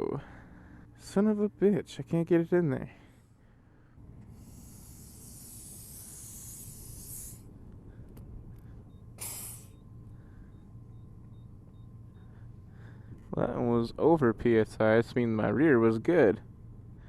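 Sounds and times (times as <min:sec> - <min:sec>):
air hissing from pump hose: 0:04.3 - 0:07.5, 0:09.2 - 0:09.8.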